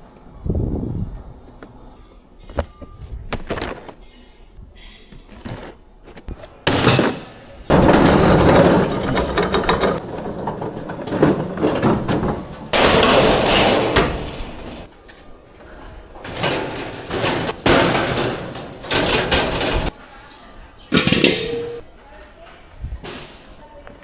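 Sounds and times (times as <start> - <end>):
equipment clattering and scraping: 7.7 - 20.0, 20.8 - 21.9.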